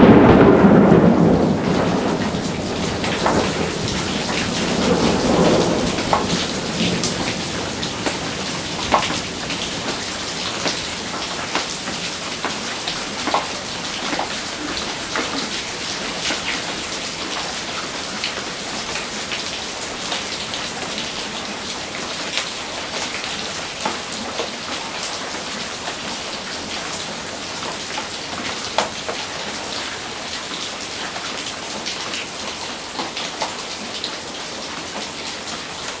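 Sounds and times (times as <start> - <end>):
thunder rumble: 0.0 - 17.7
heavy rain falling: 0.0 - 36.0
raindrops splatting: 0.0 - 36.0.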